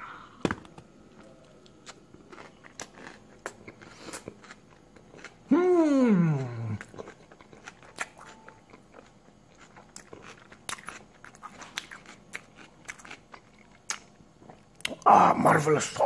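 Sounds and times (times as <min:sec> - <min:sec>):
chewing with wet clicks and crunches: 0:01.1 - 0:05.5, 0:06.4 - 0:15.1.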